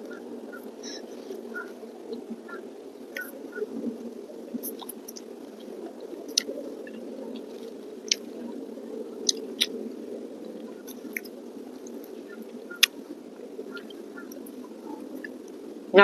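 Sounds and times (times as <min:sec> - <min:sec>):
chewing food: 0:04.6 - 0:08.5, 0:09.2 - 0:09.8, 0:10.5 - 0:13.0.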